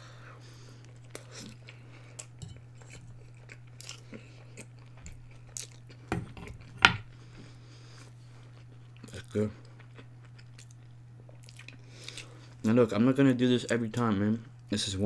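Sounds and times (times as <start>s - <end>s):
steady low hum: 0.0s - 15.0s
chewing food: 0.8s - 7.3s, 8.0s - 12.6s.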